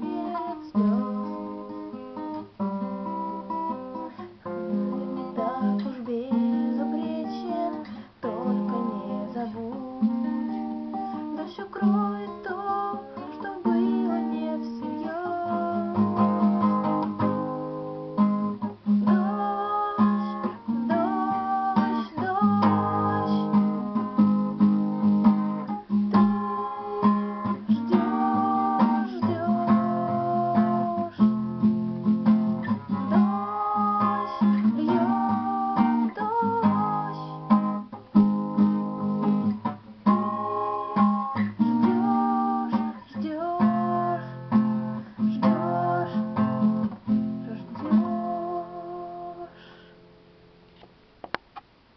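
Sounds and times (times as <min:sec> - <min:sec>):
person singing: 0:00.0 - 0:02.5, 0:04.1 - 0:18.3, 0:19.0 - 0:24.7, 0:26.1 - 0:37.8, 0:40.1 - 0:49.6
acoustic guitar strumming: 0:00.0 - 0:50.5.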